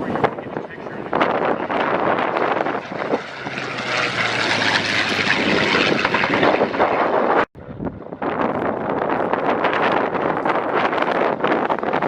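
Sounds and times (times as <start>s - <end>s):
propeller plane flying past: 0.0s - 8.4s.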